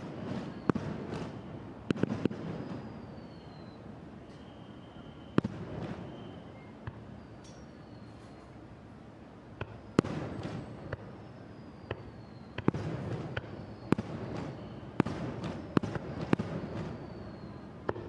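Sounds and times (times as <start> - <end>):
fireworks bursting with bangs: 0.0 - 7.2, 9.6 - 18.0
low rumbling background noise: 0.0 - 18.0
thin high whistling: 2.6 - 8.6, 9.8 - 12.7, 13.3 - 17.8.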